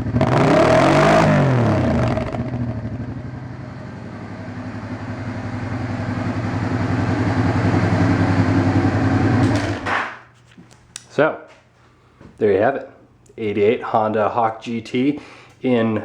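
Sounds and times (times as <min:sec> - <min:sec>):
motorcycle engine idling: 0:02.2 - 0:09.9.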